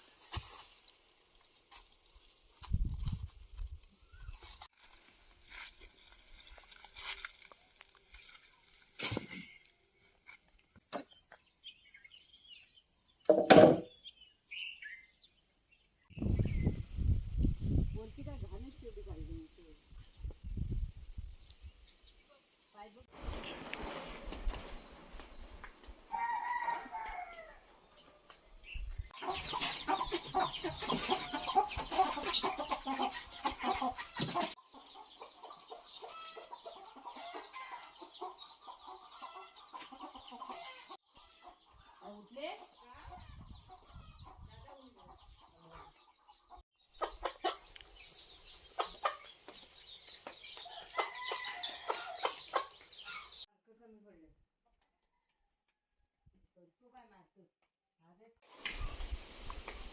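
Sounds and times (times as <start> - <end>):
bird chirps: 13.9 - 16.8
chickens clucking: 29.2 - 53.4.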